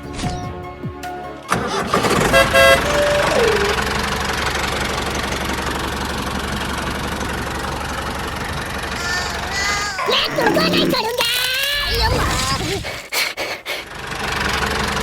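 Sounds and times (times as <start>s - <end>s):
engine starting and running: 1.3s - 15.0s
short horn toots: 1.8s - 3.8s.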